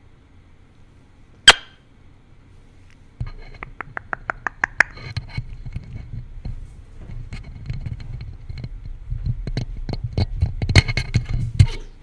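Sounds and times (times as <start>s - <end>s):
rubbing rumble on microphone: 3.2s - 12.0s
bird beak clicking: 3.6s - 5.0s.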